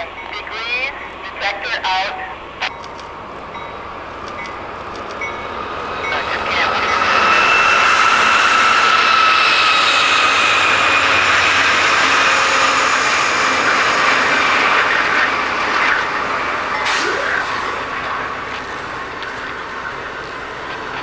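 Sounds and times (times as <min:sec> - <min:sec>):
train passing close by: 0:00.0 - 0:21.0
high whine sinking in pitch: 0:03.6 - 0:21.0.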